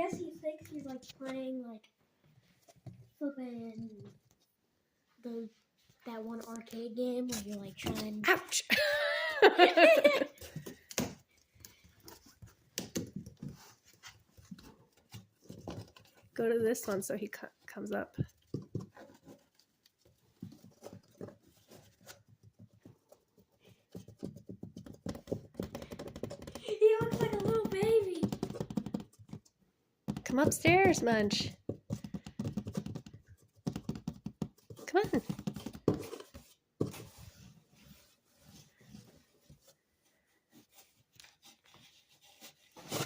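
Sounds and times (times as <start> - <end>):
cat scratching cardboard box: 30.1 - 38.5.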